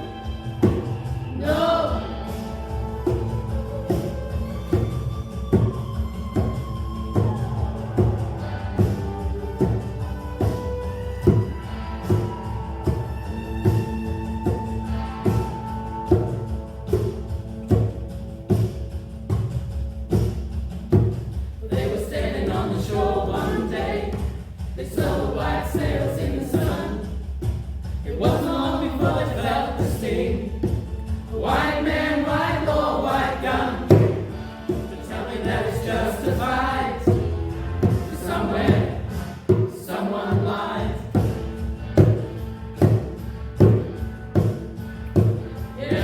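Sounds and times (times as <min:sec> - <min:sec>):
choir singing: 0:00.0 - 0:17.3, 0:21.6 - 0:27.2, 0:28.0 - 0:41.6, 0:45.6 - 0:46.0
low accompaniment: 0:00.0 - 0:46.0
percussive thumps: 0:00.6 - 0:01.2, 0:16.9 - 0:46.0.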